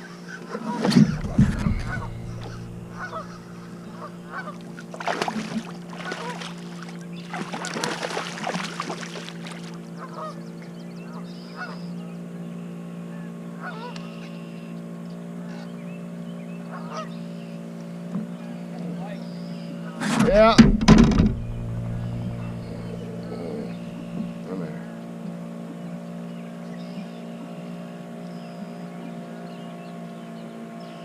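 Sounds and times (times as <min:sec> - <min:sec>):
steady low hum: 0:00.0 - 0:11.2, 0:20.1 - 0:26.1
geese honking: 0:00.5 - 0:08.2, 0:10.0 - 0:10.4, 0:21.3 - 0:24.4.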